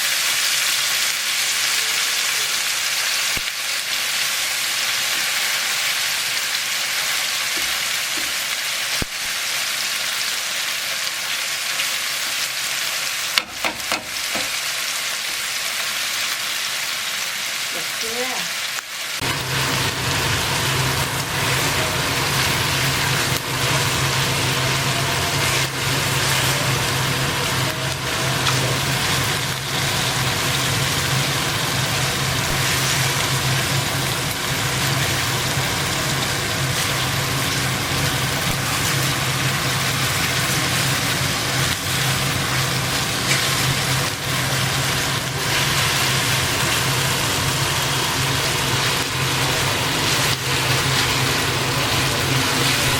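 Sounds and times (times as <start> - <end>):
oil sizzling in a pan: 0.0 - 52.9
low motor hum: 19.2 - 52.9.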